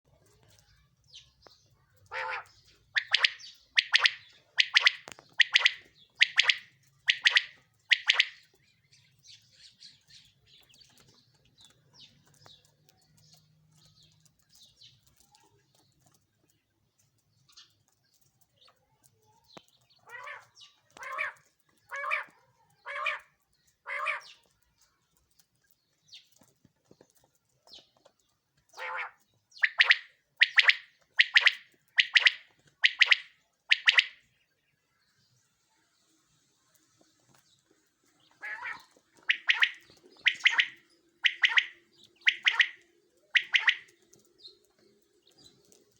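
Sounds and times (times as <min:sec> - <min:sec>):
faint chirps: 0:00.1 - 0:21.4, 0:29.5 - 0:45.9
quail calling: 0:02.1 - 0:08.4, 0:20.0 - 0:24.4, 0:28.7 - 0:34.2, 0:38.3 - 0:44.0.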